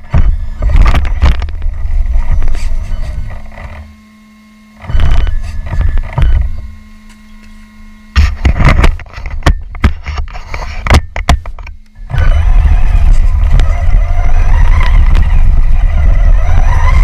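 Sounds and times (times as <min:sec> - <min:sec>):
electric toy truck motor: 0:12.0 - 0:17.0.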